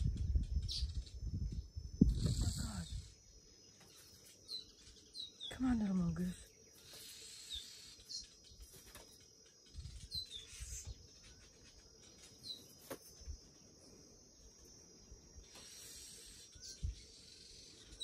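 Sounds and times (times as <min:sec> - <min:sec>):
faint high insect-like drone: 0:00.0 - 0:18.0
small bird chirping: 0:00.0 - 0:18.0.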